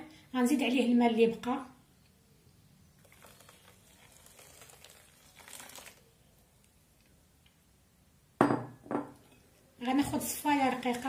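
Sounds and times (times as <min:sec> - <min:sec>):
water pouring into saucepan: 0:03.0 - 0:06.1.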